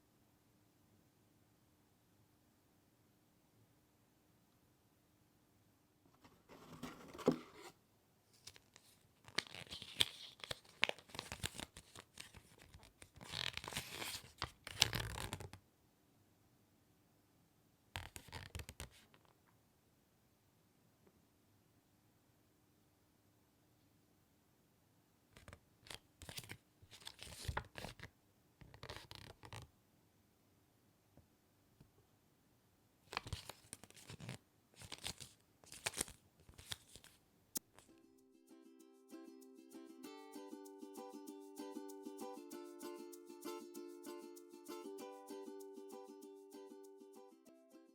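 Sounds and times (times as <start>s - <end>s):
packaging rustling: 8.4s - 15.4s, 33.2s - 37.2s
ukulele music: 37.8s - 47.9s.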